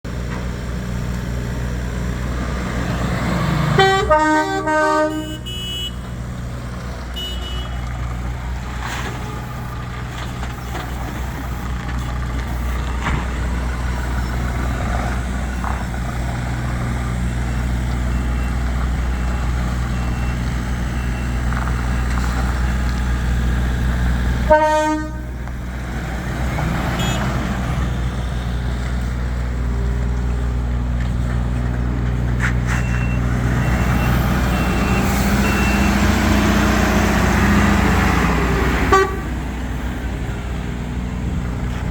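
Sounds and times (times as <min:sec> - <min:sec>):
truck diesel engine idling: 0:00.0 - 0:41.9
vehicle horn blasts: 0:03.8 - 0:06.0, 0:07.2 - 0:07.8, 0:24.5 - 0:25.4, 0:27.0 - 0:27.3, 0:38.9 - 0:39.3.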